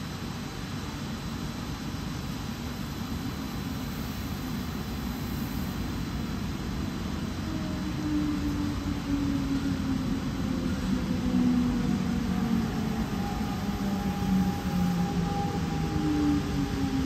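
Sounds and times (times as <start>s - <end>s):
train rumbling: 0.0s - 17.0s
humming tones sliding lower: 6.8s - 17.0s.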